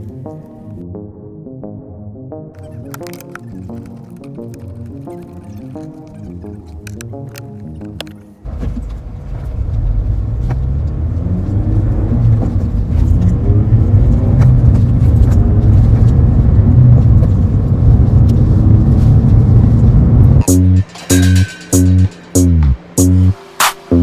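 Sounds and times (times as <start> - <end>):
road rumble: 3.2 - 24.0
car engine accelerating: 8.4 - 24.0.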